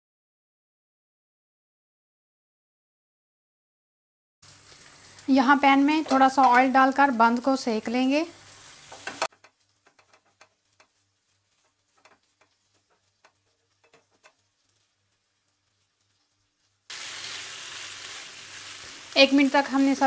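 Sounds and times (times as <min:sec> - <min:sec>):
food frying in a pan: 0:04.4 - 0:20.0
faint ticks: 0:11.6 - 0:16.3.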